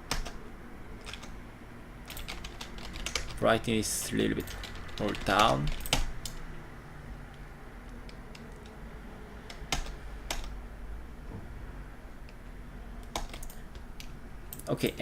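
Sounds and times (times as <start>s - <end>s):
low steady hum: 0.0s - 15.0s
keyboard and mouse clicks: 4.4s - 6.4s, 13.0s - 14.7s.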